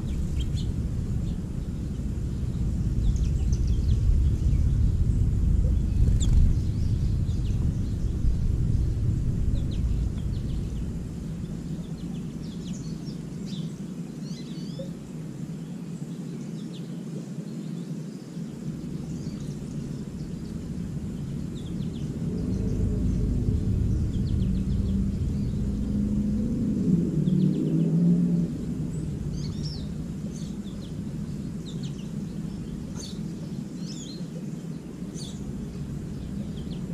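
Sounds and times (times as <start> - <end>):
low rumble: 0.0 - 15.1, 18.5 - 36.9
songbirds chirping: 0.0 - 36.9.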